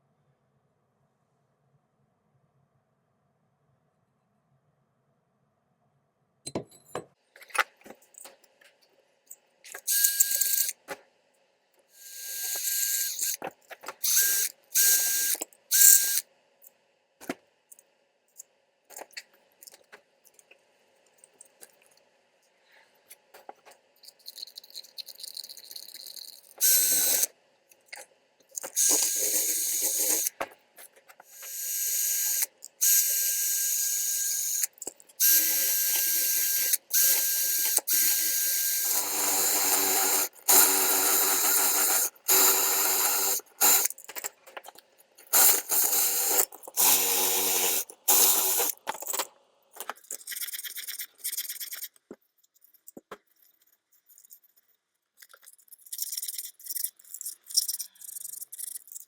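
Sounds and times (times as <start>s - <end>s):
mechanism whirring and ratcheting: 9.7s - 10.8s, 12.0s - 16.2s, 24.0s - 27.3s, 28.5s - 30.4s, 31.2s - 52.0s, 55.2s - 59.0s.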